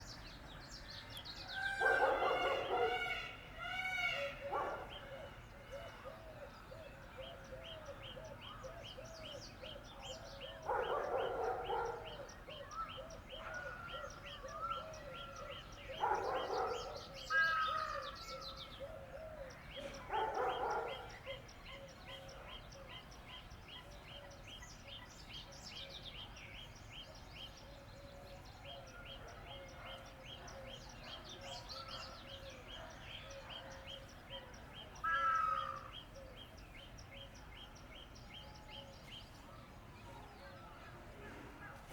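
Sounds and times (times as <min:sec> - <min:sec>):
peacock calling: 0:01.6 - 0:05.4, 0:35.0 - 0:36.0.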